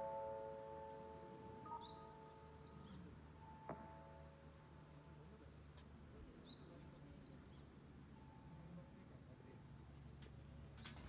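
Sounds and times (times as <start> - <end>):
small bird chirping: 1.6 - 3.5.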